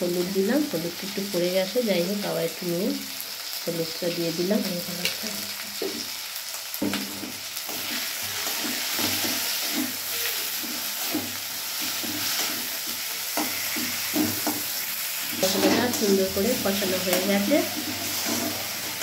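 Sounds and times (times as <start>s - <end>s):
sauce sizzling in a metal pan: 0.0s - 19.0s
metal spatula scraping a pan: 6.9s - 19.0s.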